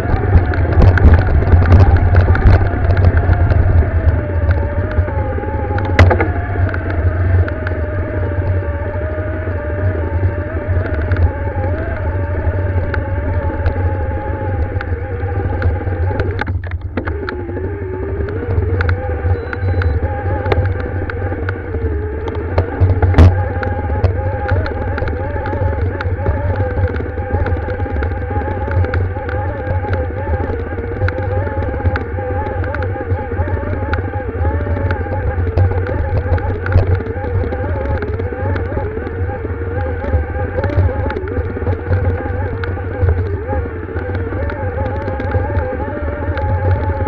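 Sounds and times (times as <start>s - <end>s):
motorcycle engine under load: 0.0s - 47.0s
small clicks and rattles: 0.0s - 47.0s
wind noise on microphone: 0.0s - 47.0s.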